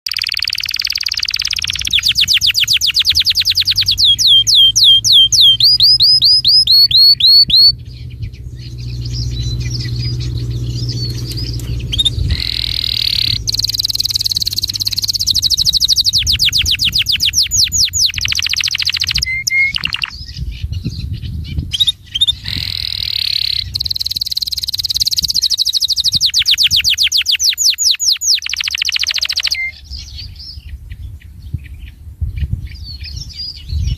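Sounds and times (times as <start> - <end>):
songbird high-pitched trills: 0.1 - 33.9
low rumble: 7.7 - 24.1.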